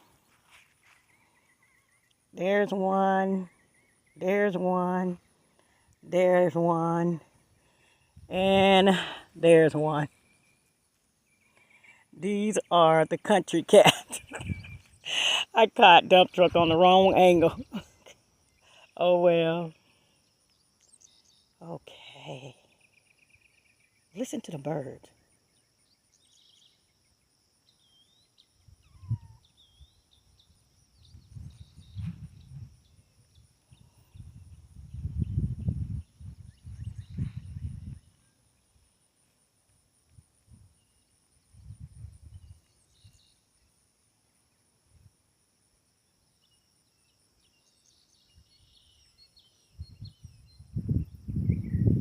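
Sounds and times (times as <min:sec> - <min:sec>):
songbirds chirping: 0:00.0 - 0:52.0
low microphone rumbles: 0:31.0 - 0:33.1, 0:33.7 - 0:38.1.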